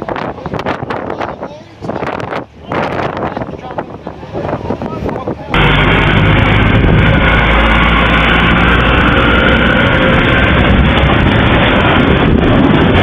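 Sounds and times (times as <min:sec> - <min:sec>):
loud steady rushing noise: 0:00.0 - 0:13.0
vehicle engine running: 0:05.5 - 0:13.0.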